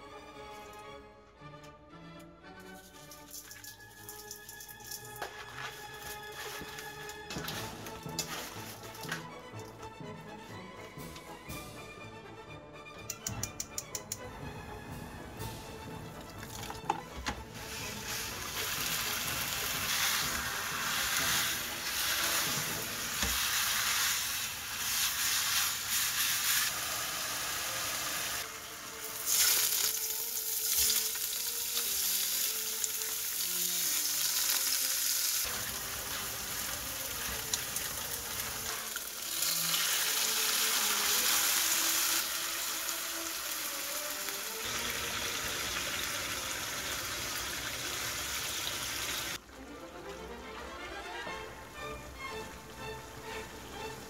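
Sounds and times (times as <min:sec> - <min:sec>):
meat sizzling in a pan: 0:03.5 - 0:09.2, 0:17.5 - 0:49.4.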